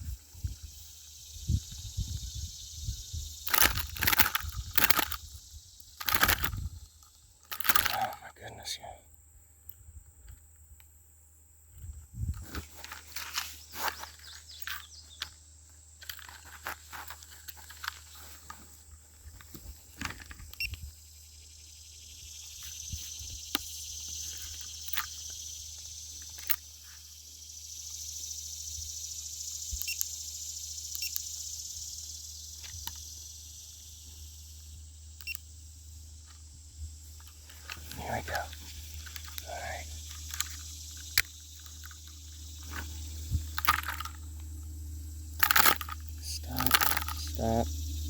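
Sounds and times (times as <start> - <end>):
high insect chorus: 0.0 - 48.0
handling clicks and knocks: 3.5 - 5.2, 6.0 - 6.6, 7.5 - 8.2, 37.2 - 44.2, 45.4 - 47.5
sharp clicks: 3.5 - 5.2, 5.8 - 6.6, 7.5 - 8.2.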